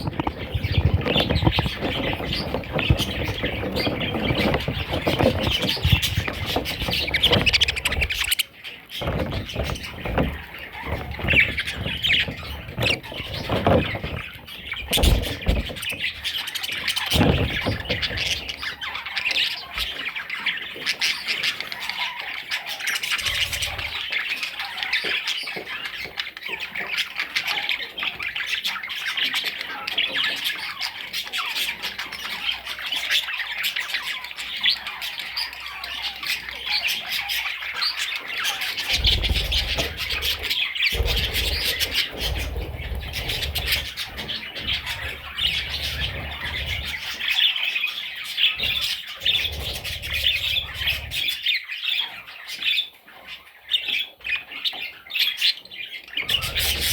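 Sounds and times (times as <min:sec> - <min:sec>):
budgerigar warbling and chattering: 0:00.0 - 0:20.0, 0:56.2 - 0:56.9.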